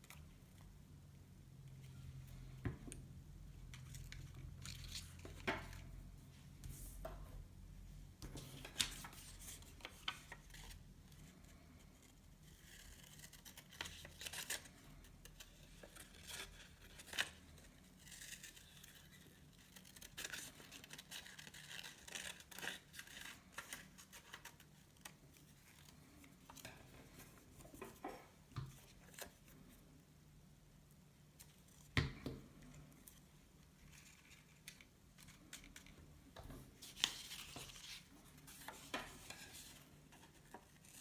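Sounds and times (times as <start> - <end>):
paper rustling and creasing: 3.7 - 6.0, 8.3 - 29.8, 32.6 - 41.0.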